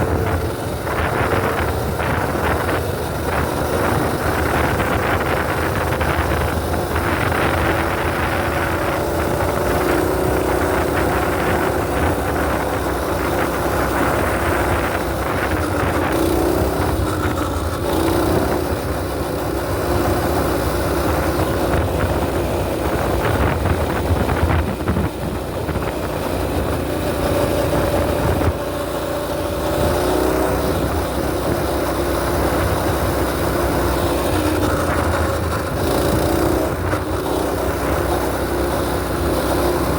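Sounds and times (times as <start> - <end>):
small engine revving: 0.0 - 39.9.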